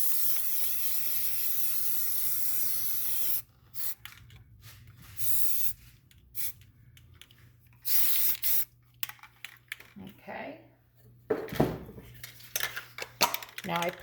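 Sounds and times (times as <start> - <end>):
spray paint can hissing: 0.0 - 4.0, 5.2 - 5.8, 6.4 - 6.6, 7.8 - 8.7.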